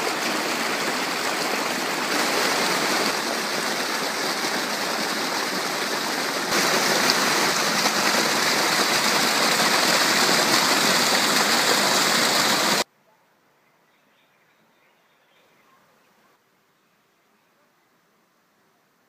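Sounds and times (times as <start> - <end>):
stream water rushing: 0.0 - 12.8.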